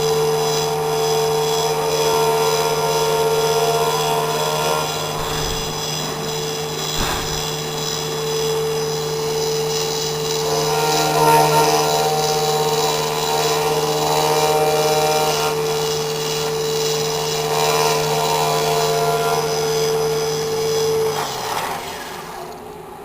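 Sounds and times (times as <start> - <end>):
engraving machine spindle whine: 0.0 - 23.0
axis motors whirring: 4.2 - 8.1.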